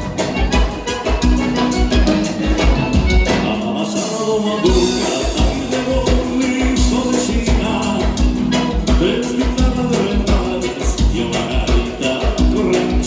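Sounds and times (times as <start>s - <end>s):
bass drum beat: 0.0s - 3.8s, 4.6s - 13.0s
live dance band music: 0.0s - 13.0s.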